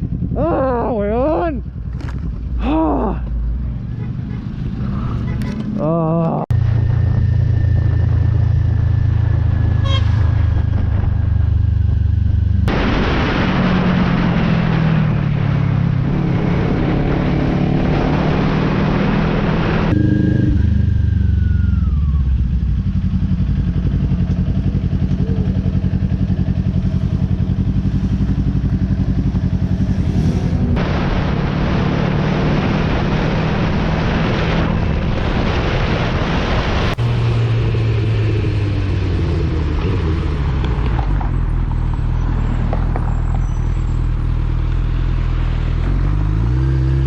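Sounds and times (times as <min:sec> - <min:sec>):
wind noise: 0:00.0 - 0:03.2, 0:06.5 - 0:22.2, 0:28.1 - 0:43.6
motorcycle engine revving: 0:00.0 - 0:43.0, 0:43.6 - 0:47.0.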